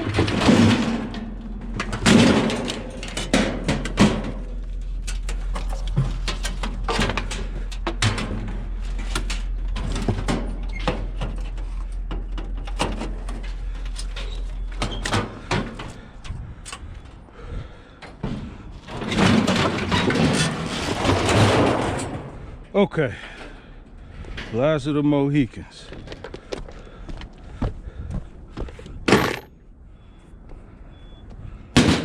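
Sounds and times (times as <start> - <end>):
clattering and scraping: 0.0 - 16.0, 18.3 - 22.5, 28.7 - 29.5
scrap metal knocking and clanking: 0.0 - 16.0
steady low hum: 0.0 - 18.8.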